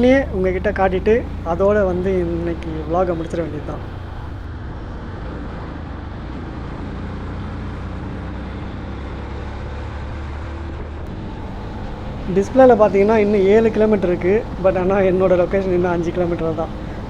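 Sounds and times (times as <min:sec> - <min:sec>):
wind rush: 0:00.0 - 0:06.3, 0:10.7 - 0:17.0
motorcycle engine hum: 0:00.0 - 0:17.0
road noise: 0:00.0 - 0:17.0.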